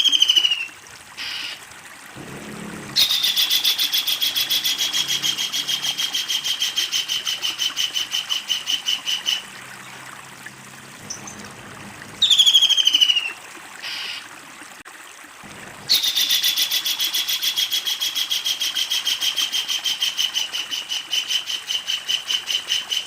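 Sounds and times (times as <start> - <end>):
kingfisher cackling call: 2.9 - 9.6.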